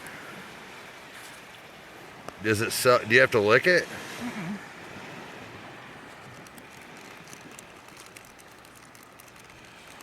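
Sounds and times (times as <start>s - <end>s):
faint ocean surf: 0.0s - 10.0s.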